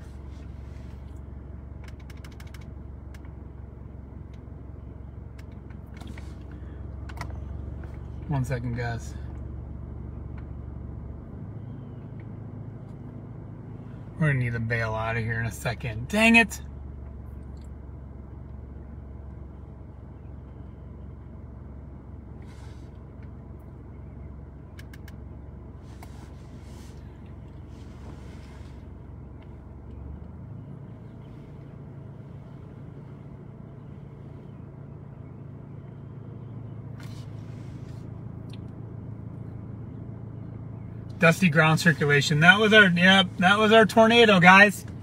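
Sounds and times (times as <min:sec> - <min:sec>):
vehicle engine idling: 0:00.0 - 0:45.0
faint clicks and rustles: 0:05.2 - 0:08.3, 0:24.6 - 0:33.1.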